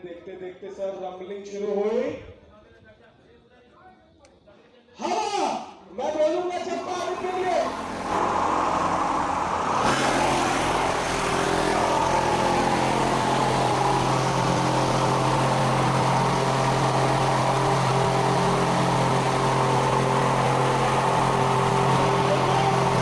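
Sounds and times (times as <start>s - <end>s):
fan motor hum: 6.6s - 23.0s
rushing blast of air: 7.2s - 23.0s.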